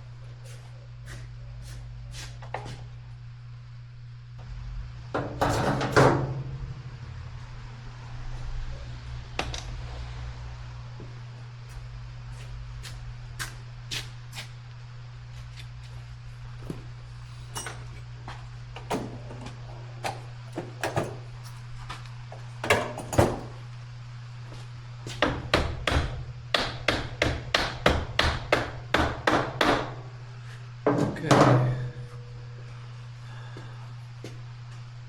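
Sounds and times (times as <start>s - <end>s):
low hum: 2.8s - 18.9s, 30.0s - 35.0s.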